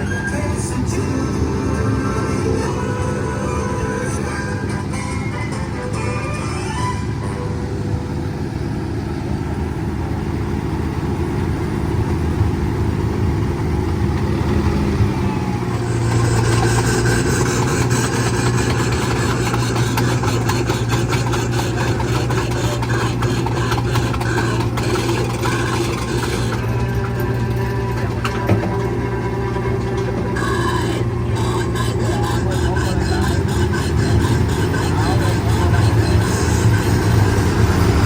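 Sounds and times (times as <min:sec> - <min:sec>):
train clicks and rattles: 0:00.0 - 0:09.5, 0:10.4 - 0:38.0
train engine drone: 0:00.0 - 0:38.0.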